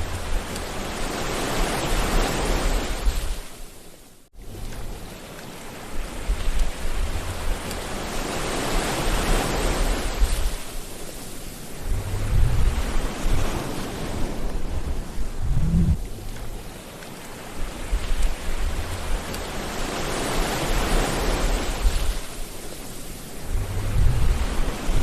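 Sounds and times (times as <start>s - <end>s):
sea waves washing onto shore: 0.0s - 25.0s
low rumble: 11.8s - 16.7s, 23.4s - 25.0s.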